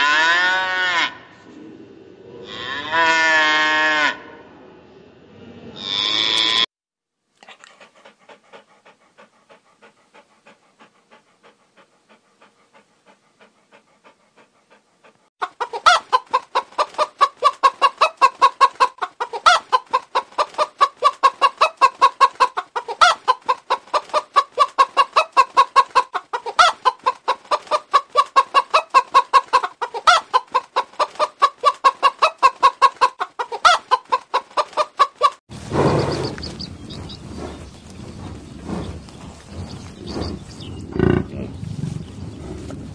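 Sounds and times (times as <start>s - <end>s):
dog panting: 7.4s - 17.6s
hen clucking: 7.4s - 41.6s.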